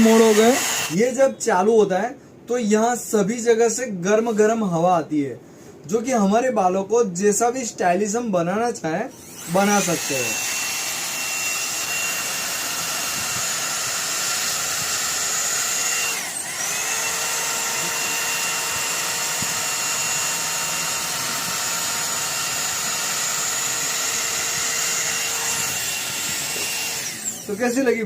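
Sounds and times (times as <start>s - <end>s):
hair dryer running: 0.0s - 1.0s, 9.2s - 27.9s.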